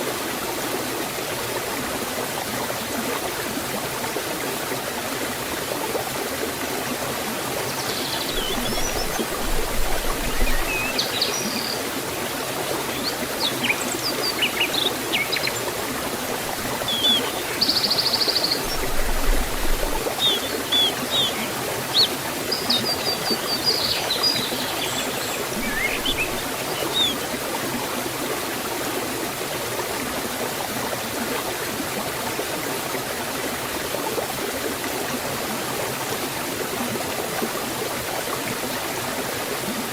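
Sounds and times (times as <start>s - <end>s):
waterfall and stream rushing: 0.0s - 39.9s
birds chirping and trilling: 7.7s - 11.8s, 12.7s - 15.7s, 16.6s - 27.2s.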